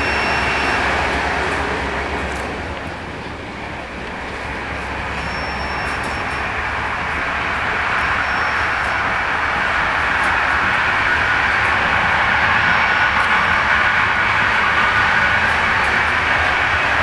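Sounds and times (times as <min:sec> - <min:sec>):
faint high whistle: 0:00.0 - 0:01.1, 0:05.2 - 0:06.4, 0:08.1 - 0:08.9
train running noise inside coach: 0:00.0 - 0:17.0.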